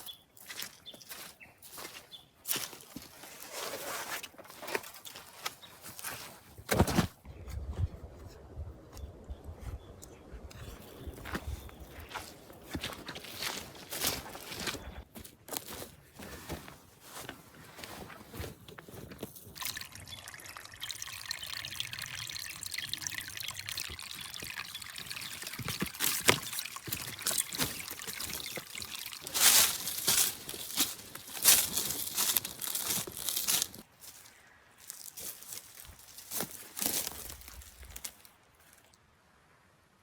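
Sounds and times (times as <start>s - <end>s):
water pouring in a trickle: 19.3s - 33.8s.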